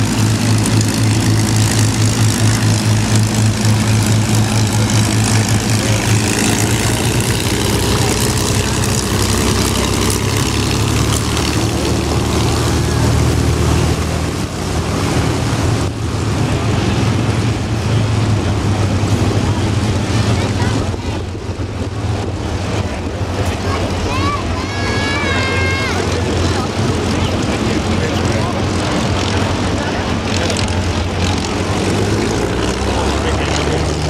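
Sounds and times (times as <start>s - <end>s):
piston aircraft engines droning: 0.0s - 34.0s.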